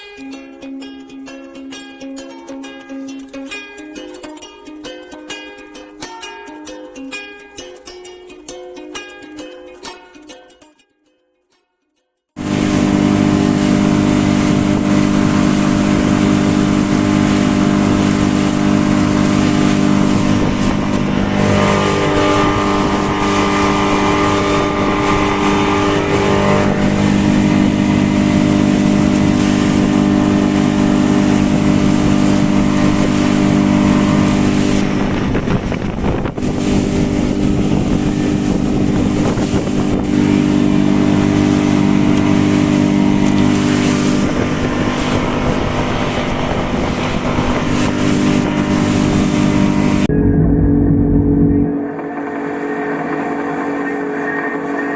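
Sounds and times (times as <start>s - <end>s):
outboard motor running: 12.4s - 54.9s.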